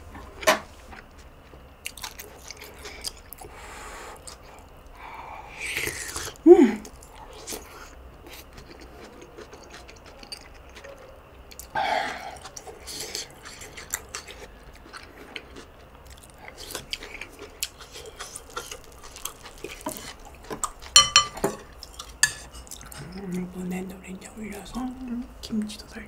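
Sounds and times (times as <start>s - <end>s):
wet chewing and mouth sounds: 1.0s - 5.0s, 5.7s - 23.4s
chopsticks clinking against a dish: 20.9s - 22.6s.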